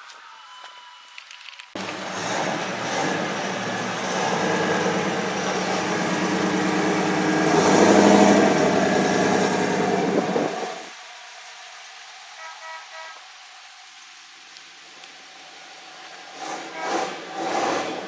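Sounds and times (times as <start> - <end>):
vehicle engine running loudly: 1.8 - 10.9.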